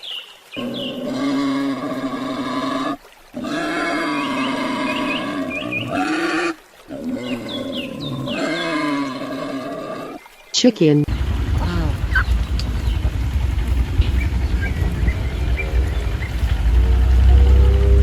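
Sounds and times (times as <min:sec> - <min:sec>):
pig squealing: 0:00.6 - 0:10.2.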